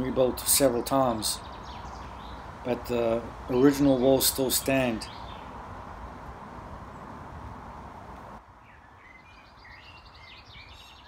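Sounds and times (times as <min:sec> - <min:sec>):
outdoor background hiss: 0:00.0 - 0:11.0
small bird chirping: 0:01.2 - 0:02.6, 0:04.9 - 0:05.6, 0:08.6 - 0:11.0.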